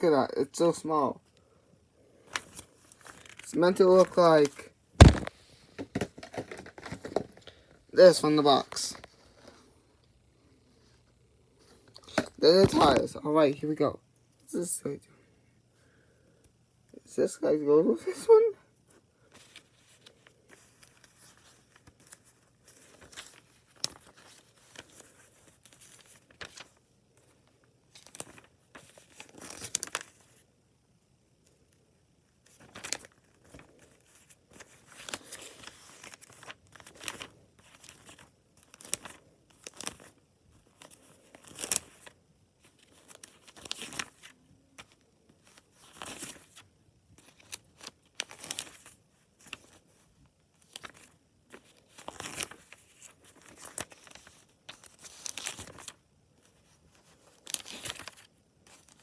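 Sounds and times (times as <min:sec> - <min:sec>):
packaging crinkling and rustling: 0:02.2 - 0:07.8, 0:19.4 - 0:30.4, 0:32.5 - 0:46.6, 0:47.2 - 0:59.0.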